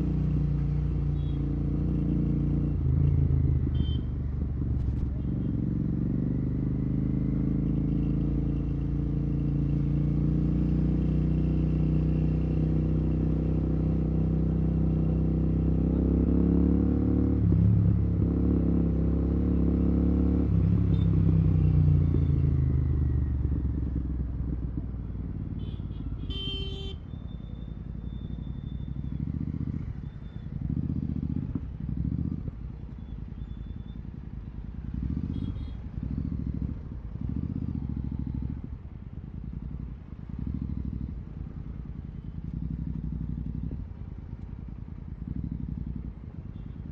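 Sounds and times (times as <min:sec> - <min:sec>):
motorcycle engine accelerating: 0:04.6 - 0:25.4, 0:28.8 - 0:33.0, 0:34.8 - 0:46.9.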